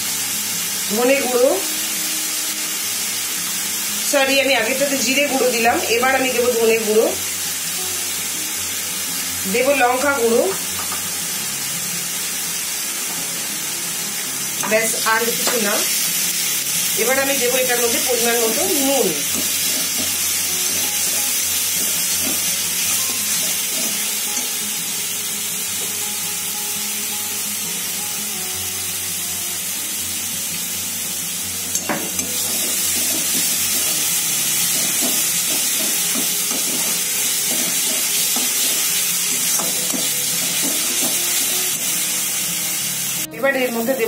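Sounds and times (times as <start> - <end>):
spice paste sizzling in oil: 0.0 - 44.0.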